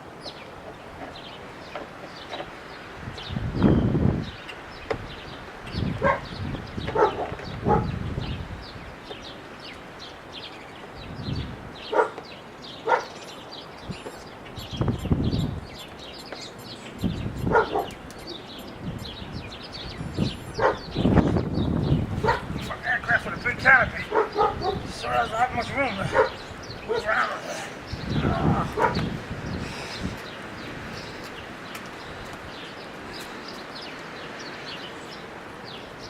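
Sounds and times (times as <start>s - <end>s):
wind rumbling on microphone: 0.0s - 36.0s
dog barking: 6.0s - 6.3s, 6.9s - 7.9s, 11.9s - 12.2s, 12.8s - 13.2s, 17.5s - 18.0s, 20.6s - 20.9s, 22.2s - 22.5s, 24.1s - 24.9s, 26.0s - 27.1s, 28.7s - 29.1s.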